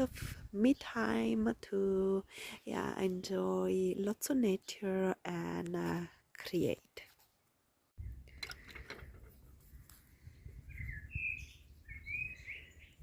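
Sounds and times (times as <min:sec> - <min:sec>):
wind rumbling on microphone: 0:00.0 - 0:01.7, 0:08.0 - 0:13.0
bird chirping: 0:09.3 - 0:13.0.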